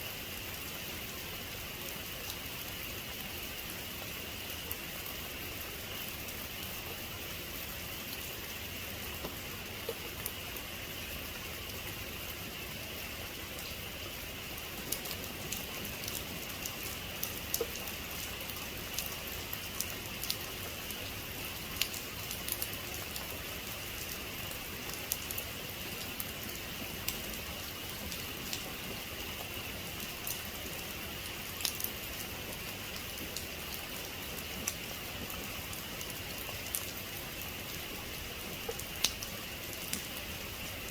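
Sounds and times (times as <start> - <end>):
sharp drip ticks: 38.6 - 40.1.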